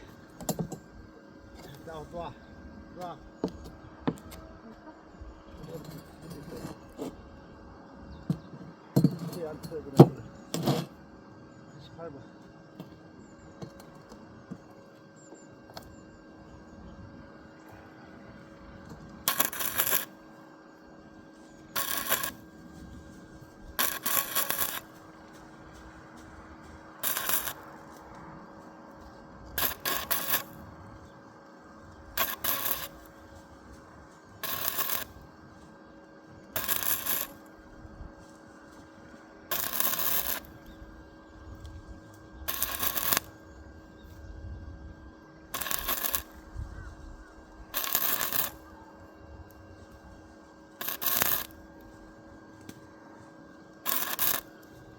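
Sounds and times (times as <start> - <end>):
arc welder bursts: 18.5 - 20.4, 21.1 - 28.2, 29.4 - 38.0, 39.5 - 41.1, 41.8 - 43.5, 45.5 - 46.6, 47.4 - 48.7, 49.5 - 52.8, 53.7 - 54.9.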